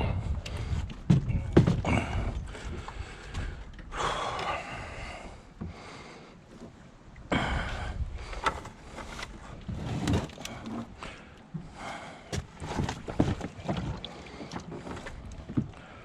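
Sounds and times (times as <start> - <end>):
knocks and thumps: 0.9 - 2.2.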